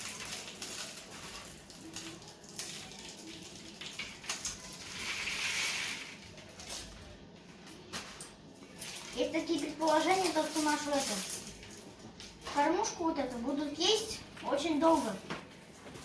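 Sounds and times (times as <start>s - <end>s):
seeds pattering on feeder: 0.0s - 7.2s.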